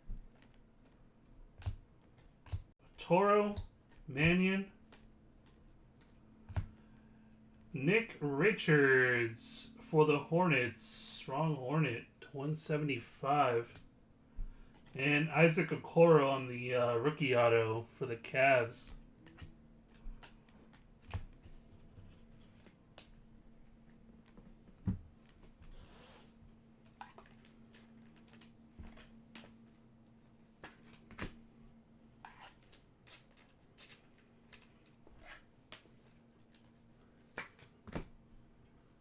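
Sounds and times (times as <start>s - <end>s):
faint steady hum: 0.0s - 39.0s
cards clicking and tapping: 4.8s - 6.8s, 18.9s - 23.2s, 30.5s - 31.4s, 35.7s - 38.1s.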